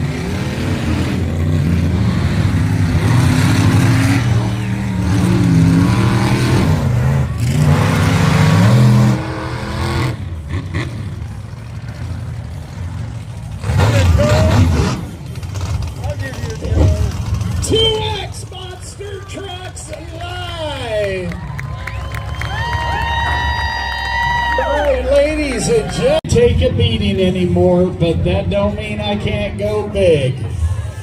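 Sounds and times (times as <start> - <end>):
truck engine revving: 0.0 - 23.8.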